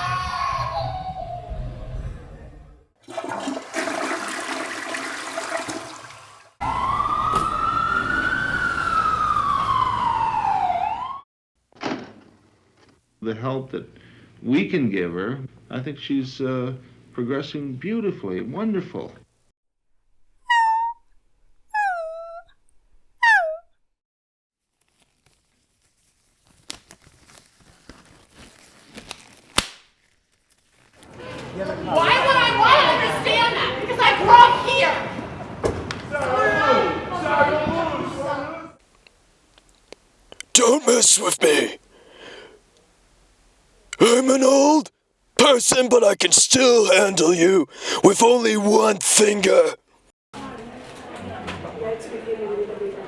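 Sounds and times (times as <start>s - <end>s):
toilet flushing: 3.0s - 6.6s
emergency siren wailing: 6.6s - 11.2s.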